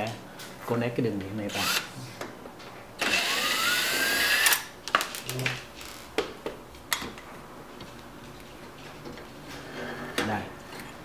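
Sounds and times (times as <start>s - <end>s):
power drill motor whine: 3.0s - 4.6s.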